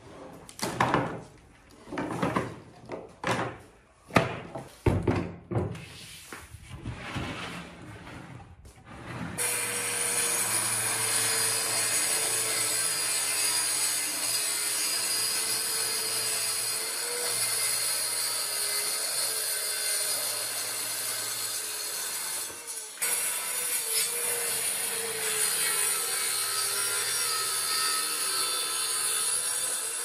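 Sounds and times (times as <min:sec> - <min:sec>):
power tool whining on wood: 0:09.4 - 0:30.0.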